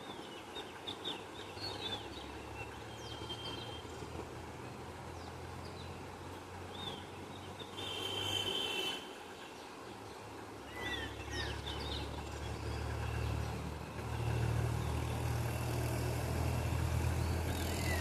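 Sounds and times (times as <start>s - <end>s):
wild birds chirping and whistling: 10.7s - 13.4s.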